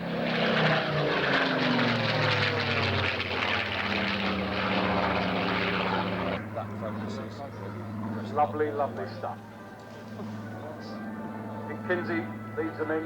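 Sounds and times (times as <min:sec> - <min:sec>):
propeller aircraft engines passing: 0:00.0 - 0:13.0.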